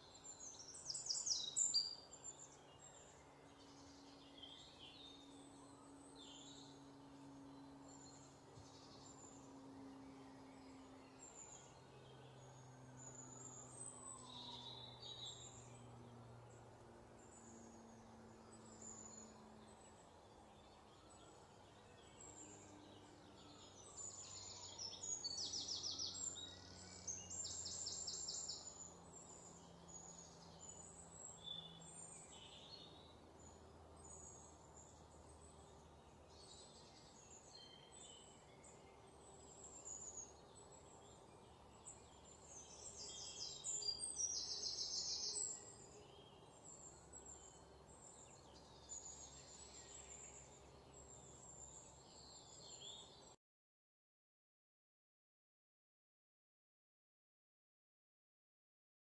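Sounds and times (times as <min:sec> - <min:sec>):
faint outdoor background: 0:00.0 - 0:53.4
birds singing and chirping: 0:00.1 - 0:16.1, 0:17.2 - 0:53.3.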